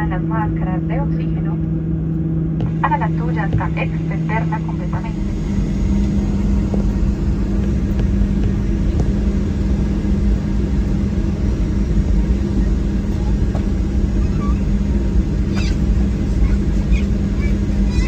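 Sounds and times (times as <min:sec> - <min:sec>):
aircraft cabin engine drone: 0:00.0 - 0:18.0.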